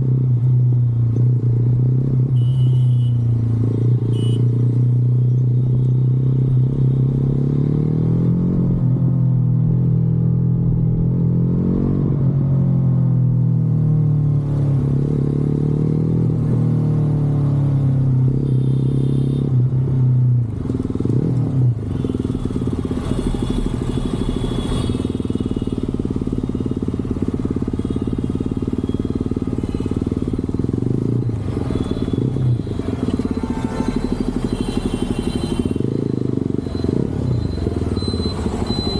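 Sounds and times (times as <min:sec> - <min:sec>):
motorcycle engine running: 0:20.5 - 0:38.9.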